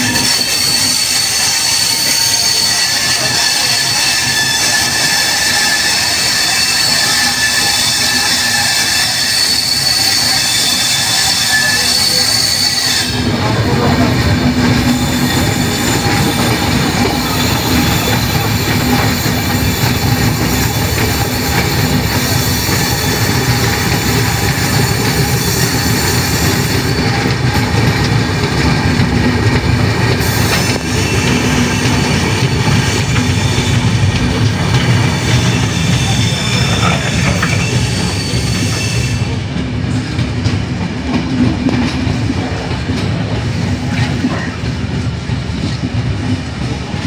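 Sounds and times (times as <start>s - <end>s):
high wheel squeal: 0.0s - 39.5s
train wheels rumbling on track: 0.0s - 47.0s.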